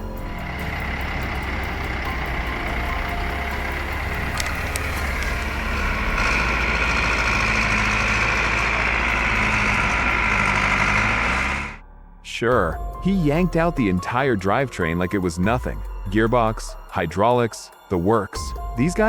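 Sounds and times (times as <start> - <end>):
tractor engine running: 0.0 - 11.9.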